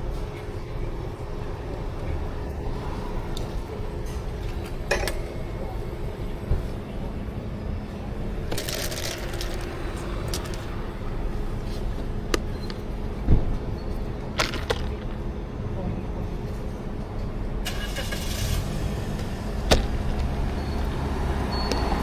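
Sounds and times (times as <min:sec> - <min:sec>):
low hum and rumble: 0:00.0 - 0:21.6
clicks and knocks of equipment: 0:14.4 - 0:15.2.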